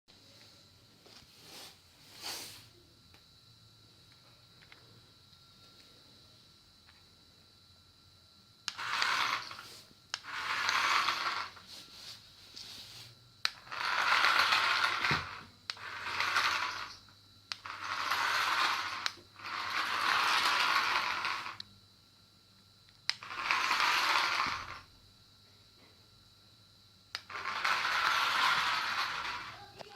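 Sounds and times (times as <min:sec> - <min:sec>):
toy motor whirring: 0:08.7 - 0:21.6, 0:23.1 - 0:24.9, 0:27.1 - 0:29.9.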